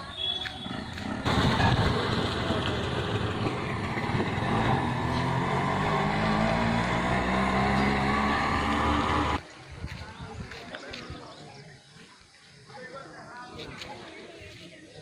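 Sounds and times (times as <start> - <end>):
engine humming: 0.0 - 9.4.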